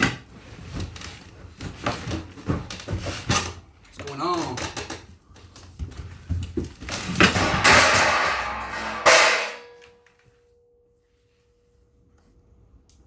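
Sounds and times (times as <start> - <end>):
metal plates clattering on floor: 6.8 - 10.3
metallic ringing: 7.4 - 10.8.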